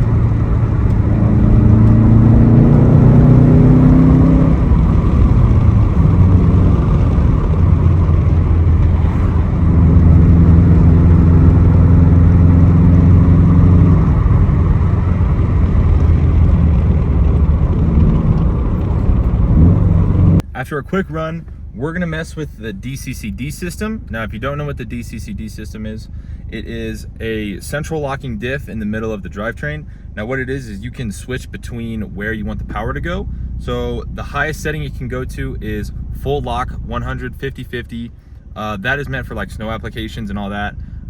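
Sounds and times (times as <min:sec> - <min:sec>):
car engine revving: 0:00.0 - 0:20.4, 0:30.9 - 0:41.0.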